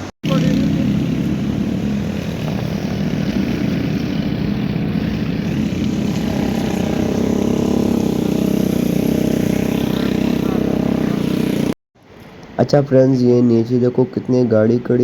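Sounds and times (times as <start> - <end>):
vehicle engine rumbling: 0.0 - 11.8
road noise: 0.0 - 15.0.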